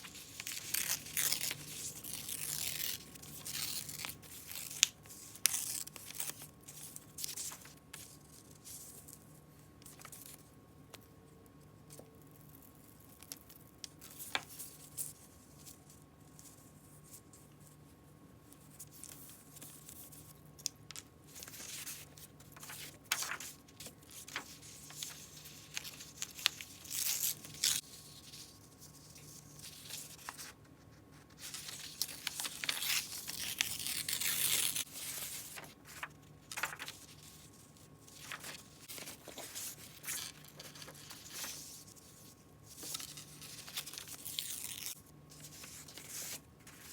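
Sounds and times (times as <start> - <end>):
paper rustling and crinkling: 0.0 - 10.5, 18.5 - 46.9
paper tearing: 0.3 - 6.4, 31.5 - 36.9, 42.9 - 45.0.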